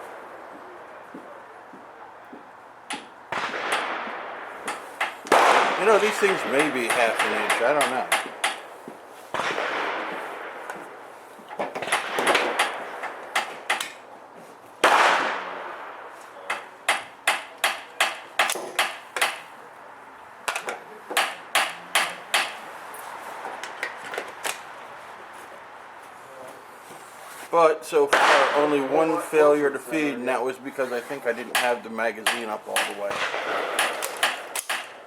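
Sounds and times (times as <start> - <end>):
rifle shots with echo: 3.3 - 8.7, 9.3 - 11.1, 11.8 - 14.0, 14.8 - 19.4, 28.1 - 29.6, 31.5 - 35.0.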